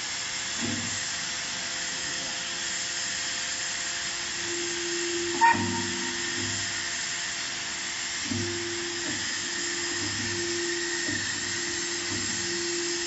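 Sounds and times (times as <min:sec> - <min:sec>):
hydraulic press hissing: 0:00.5 - 0:13.0
machine hum: 0:04.0 - 0:07.3, 0:08.1 - 0:13.0.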